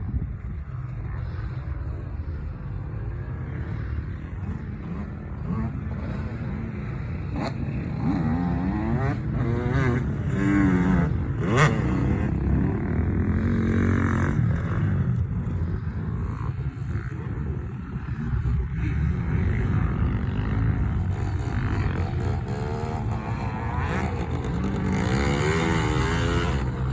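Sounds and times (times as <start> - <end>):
small two-stroke engine revving: 21.0 - 26.9.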